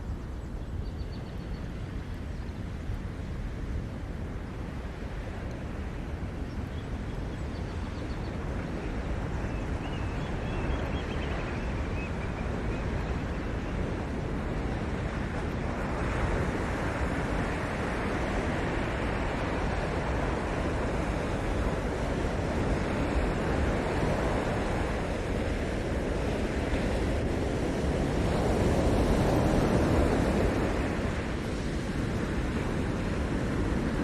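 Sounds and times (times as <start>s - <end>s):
ocean surf washing onto shore: 8.1s - 34.0s.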